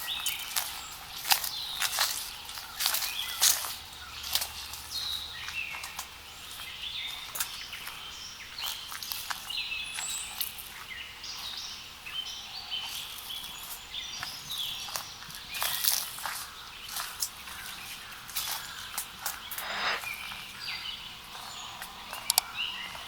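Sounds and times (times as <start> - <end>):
songbirds chirping: 0.0 - 18.2.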